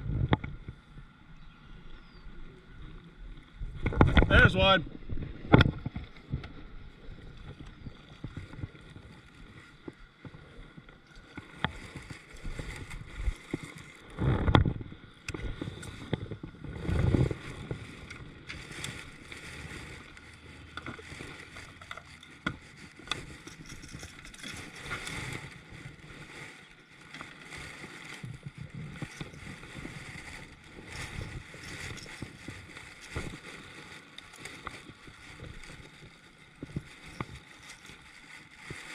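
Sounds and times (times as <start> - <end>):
faint water: 0.0 - 38.9
knocks and clicks on a kayak: 3.8 - 4.4, 5.4 - 6.7, 11.2 - 19.0.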